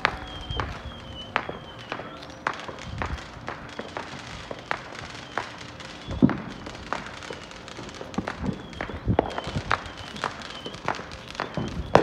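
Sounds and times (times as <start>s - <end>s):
fireworks popping and cracking: 0.0s - 12.0s.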